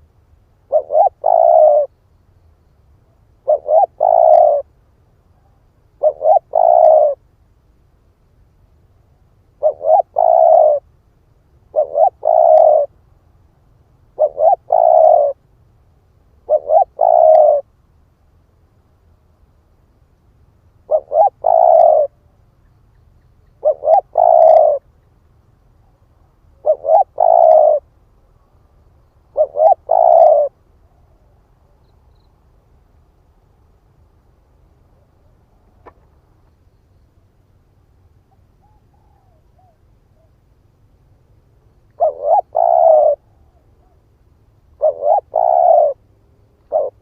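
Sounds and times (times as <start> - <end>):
dove cooing: 0.6 - 1.9, 3.4 - 4.7, 5.3 - 7.2, 9.5 - 10.9, 11.7 - 13.0, 14.1 - 15.4, 16.4 - 17.7, 20.8 - 22.3, 23.5 - 24.9, 26.5 - 27.9, 29.3 - 31.8, 38.3 - 40.4, 41.9 - 44.0, 44.8 - 47.0.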